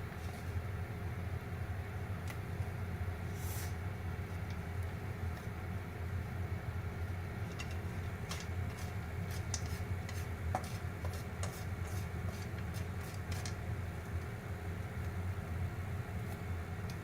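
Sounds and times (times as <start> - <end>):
steady low hum: 0.0 - 17.0
popcorn popping: 7.5 - 14.4.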